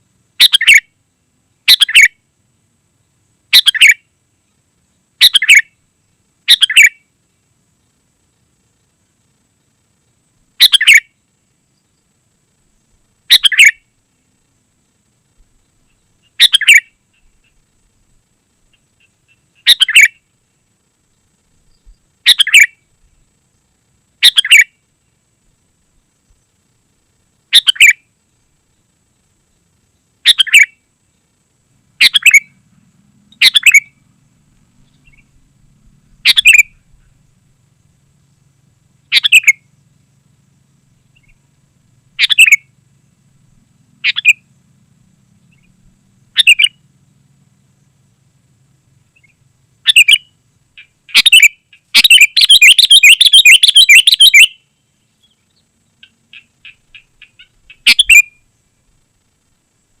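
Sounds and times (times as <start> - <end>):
bulbul calling: 0.4 - 0.9, 1.6 - 2.2, 3.5 - 4.1, 5.2 - 5.8, 6.4 - 7.1, 10.6 - 11.2, 13.2 - 13.9, 15.5 - 17.7, 18.6 - 20.3, 21.6 - 22.9, 24.2 - 24.8, 27.5 - 28.1, 30.2 - 30.9, 32.0 - 32.6, 33.3 - 34.1, 34.7 - 35.5, 36.1 - 37.3, 39.0 - 39.9, 40.9 - 41.4, 42.1 - 42.8, 44.0 - 44.5, 45.3 - 46.9, 49.1 - 58.5.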